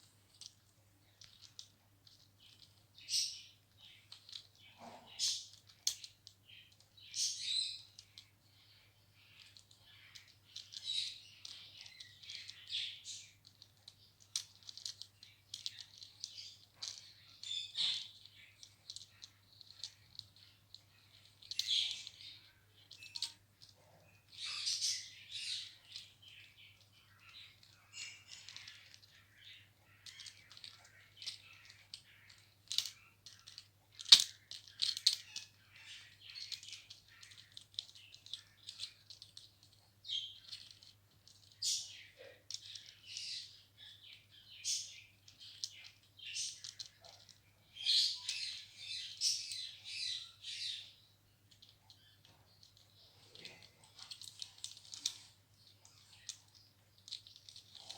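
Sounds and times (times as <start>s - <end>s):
toys rattling: 0.0s - 8.3s, 9.3s - 50.8s, 51.5s - 57.9s.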